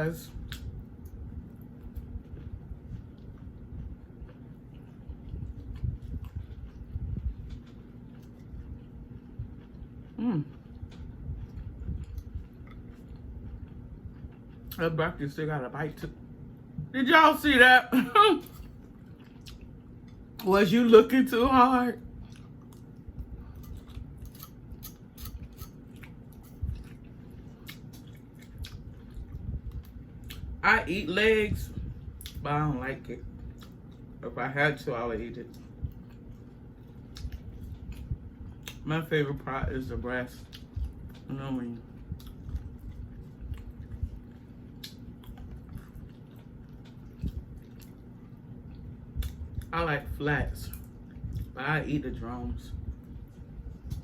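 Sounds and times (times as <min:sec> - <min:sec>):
person chewing food: 0:00.3 - 0:14.8, 0:18.4 - 0:20.5, 0:22.0 - 0:30.6, 0:33.2 - 0:34.2, 0:35.4 - 0:38.8, 0:40.3 - 0:49.7, 0:50.7 - 0:51.6, 0:52.7 - 0:54.0.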